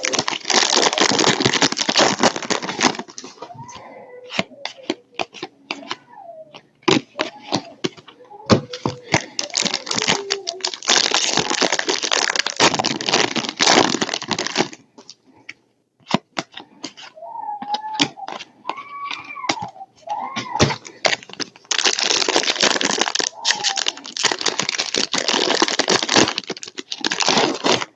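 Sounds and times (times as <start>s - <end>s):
foil wrapper tearing and crinkling: 0.0s - 3.4s, 9.0s - 14.8s, 20.7s - 27.9s.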